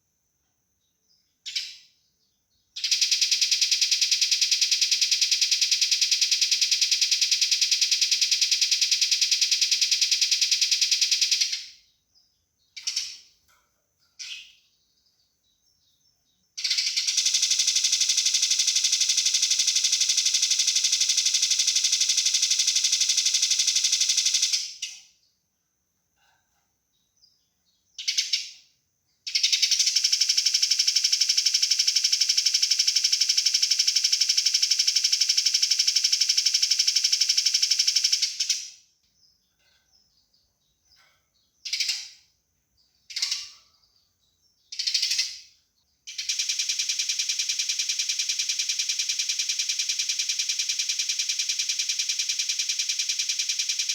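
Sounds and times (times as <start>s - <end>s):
sparrow chirps: 0.8s - 25.3s, 26.9s - 30.0s, 38.0s - 53.9s
sparrow rapid chattering: 12.7s - 13.3s, 44.6s - 45.5s.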